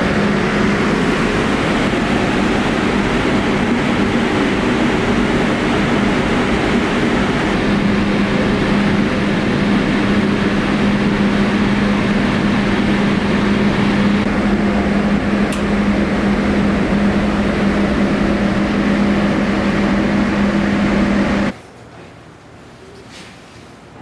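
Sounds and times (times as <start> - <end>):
machine running with low hum: 0.0 - 21.5.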